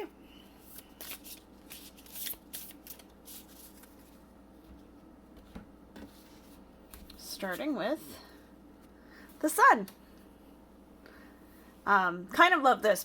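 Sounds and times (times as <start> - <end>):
cards being shuffled: 0.6 - 4.2
cards rustling: 0.6 - 4.2.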